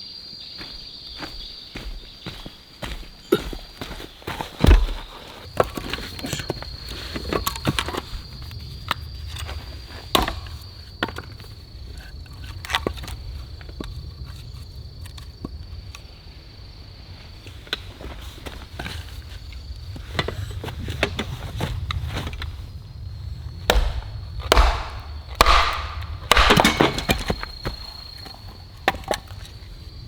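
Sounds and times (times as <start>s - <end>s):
heavy thump: 23.7s - 27.5s.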